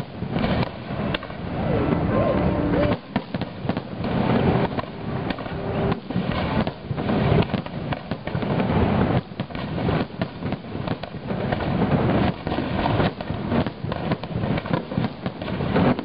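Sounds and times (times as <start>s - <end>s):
fireworks shells bursting: 0.0s - 16.0s.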